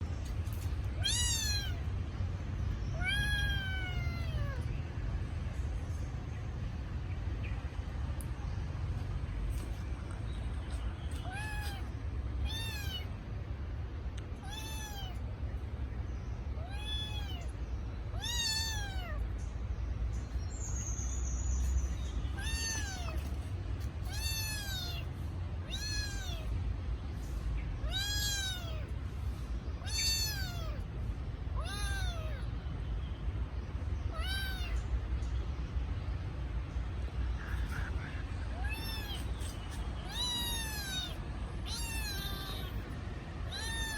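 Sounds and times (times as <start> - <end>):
steady low rumble: 0.0 - 43.9
kitten meowing: 1.0 - 1.9, 2.9 - 4.6, 11.2 - 13.1, 14.4 - 15.2, 16.6 - 17.5, 18.1 - 19.2, 22.3 - 23.3, 24.0 - 26.5, 27.8 - 28.9, 29.8 - 30.8, 31.6 - 32.4, 34.1 - 34.8, 38.5 - 43.9.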